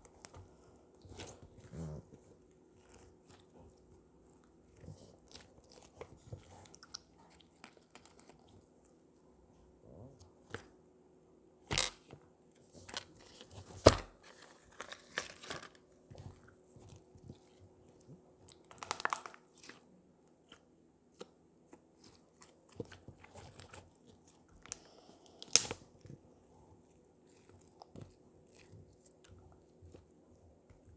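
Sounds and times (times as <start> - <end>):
slime crackling and popping: 18.6 - 19.7.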